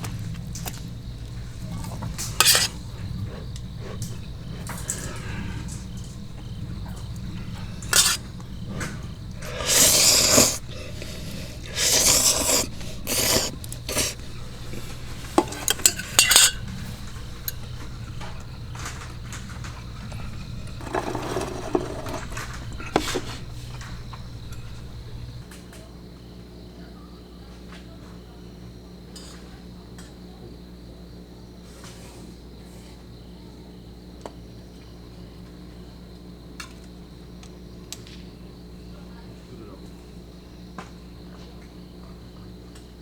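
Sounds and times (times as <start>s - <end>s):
steady low hum: 0.0s - 25.5s
dishes and cutlery clattering: 3.8s - 25.3s.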